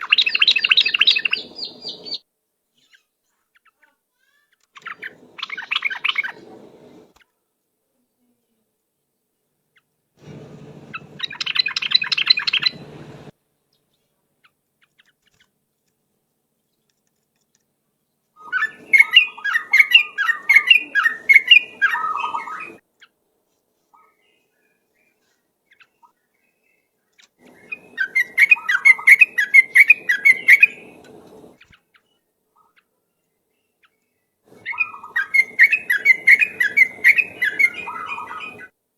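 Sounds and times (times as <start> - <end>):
bird chattering song: 0.0 - 2.2, 4.5 - 7.0, 10.2 - 15.5, 18.4 - 23.1, 27.5 - 32.9, 33.6 - 38.7.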